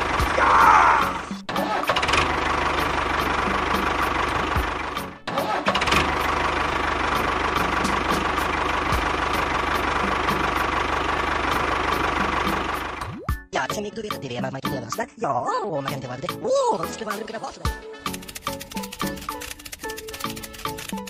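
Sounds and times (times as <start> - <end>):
small engine ticking: 1.6 - 13.0, 18.1 - 21.0.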